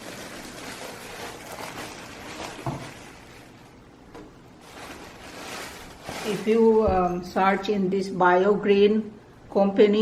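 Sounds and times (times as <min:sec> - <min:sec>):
rustling and scraping: 0:00.0 - 0:03.8, 0:04.6 - 0:06.9.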